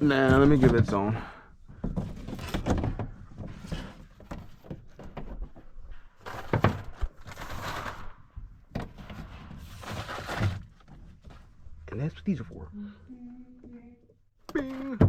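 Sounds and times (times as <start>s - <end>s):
knocks and rustling: 0.0s - 11.8s.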